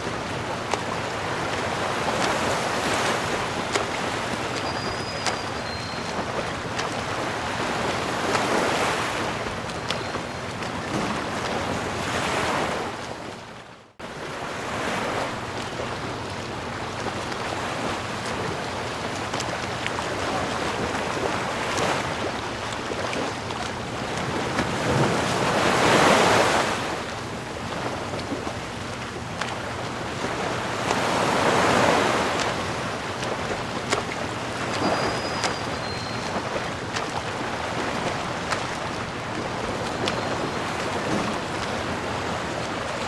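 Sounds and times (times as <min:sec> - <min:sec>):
sea waves washing onto shore: 0:00.0 - 0:43.0.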